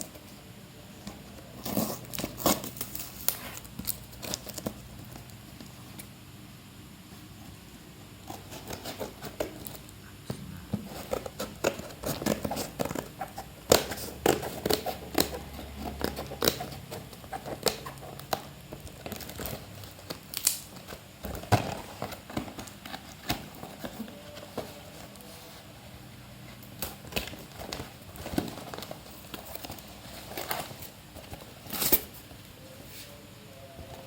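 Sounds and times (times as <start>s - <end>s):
packaging crinkling and rustling: 1.0s - 5.8s, 10.8s - 25.8s, 26.5s - 32.8s.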